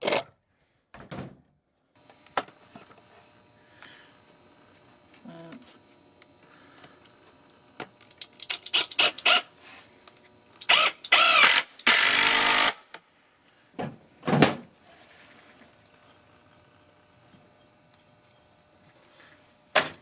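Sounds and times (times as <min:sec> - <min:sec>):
power drill driving screws: 0:08.1 - 0:09.5, 0:10.6 - 0:12.8.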